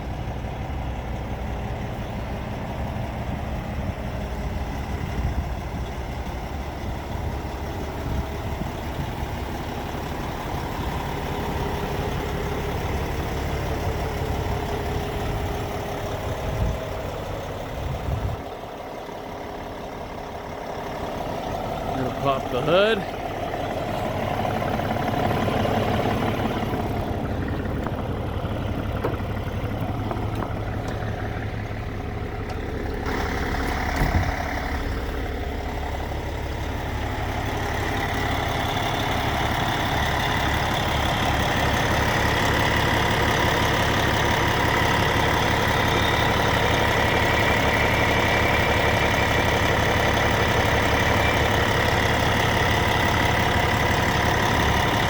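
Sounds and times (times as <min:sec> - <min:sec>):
diesel truck engine idling: 0:00.0 - 0:55.0
thump: 0:33.9 - 0:34.4.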